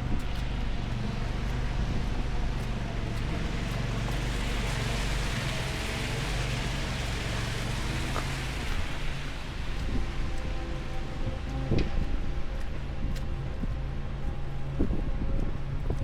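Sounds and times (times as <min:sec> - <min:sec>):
traffic engine rumble: 0:00.0 - 0:16.0
hiss of snowstorm: 0:03.7 - 0:10.1.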